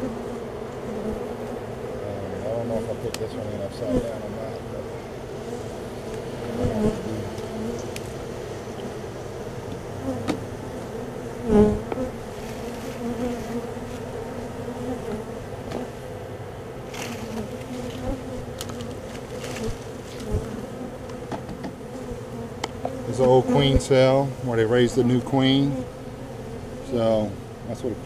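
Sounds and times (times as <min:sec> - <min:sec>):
bees buzzing: 0:00.0 - 0:28.0
clicks from handling hive parts: 0:03.1 - 0:03.4, 0:06.1 - 0:08.1, 0:11.9 - 0:13.0, 0:16.9 - 0:21.8, 0:22.6 - 0:23.4.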